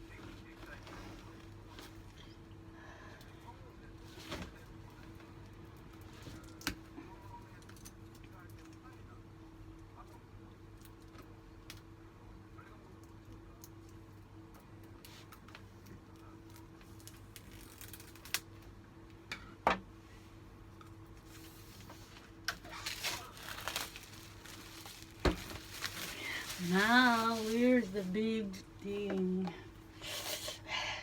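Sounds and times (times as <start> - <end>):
faint steady hum: 0.0 - 31.0
wrapping crinkling: 16.4 - 18.5, 21.2 - 28.5.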